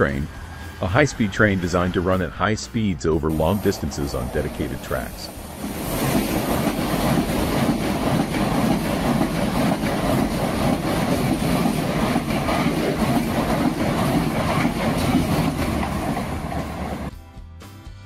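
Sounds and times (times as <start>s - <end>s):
train wheels rumbling on rails: 0.0s - 17.1s
wheels clattering over track: 3.4s - 17.1s.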